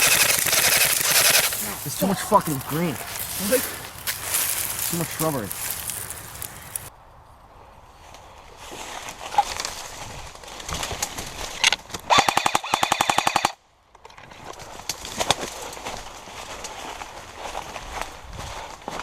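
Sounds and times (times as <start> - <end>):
airsoft rifle full-auto burst: 0.0 - 2.3, 12.1 - 13.6.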